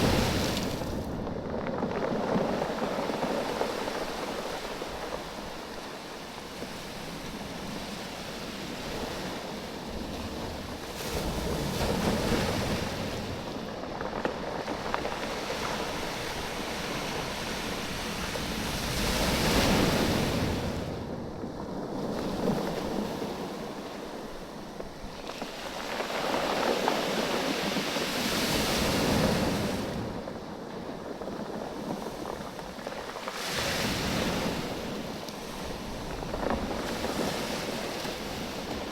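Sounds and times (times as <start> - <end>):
waves washing over beach: 0.0 - 1.3, 2.0 - 38.9.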